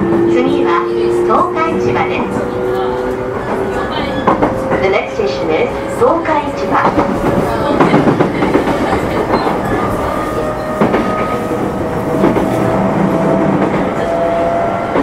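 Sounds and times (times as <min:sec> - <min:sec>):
train wheels rumbling on rail: 0:00.0 - 0:15.0
clacks over rail joints: 0:06.7 - 0:12.8.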